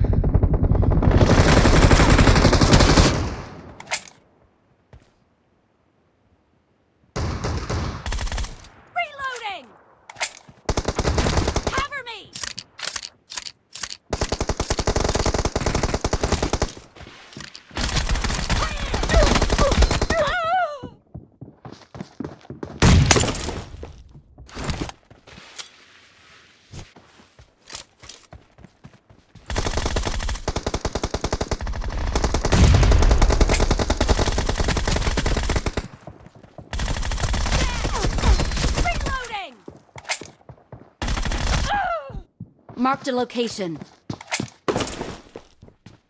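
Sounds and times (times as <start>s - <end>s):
video game automatic gunfire: 0.0s - 3.4s, 29.5s - 36.1s, 36.7s - 39.3s.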